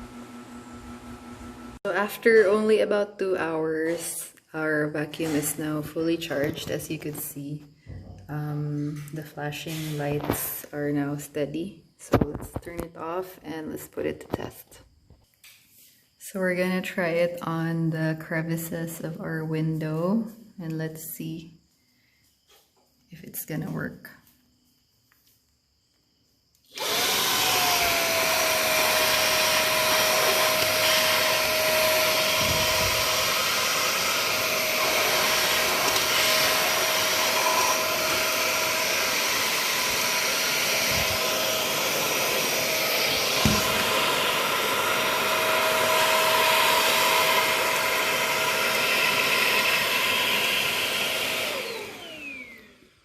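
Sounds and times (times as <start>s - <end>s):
handheld vacuum cleaner whine: 0.0s - 2.8s, 26.5s - 53.0s.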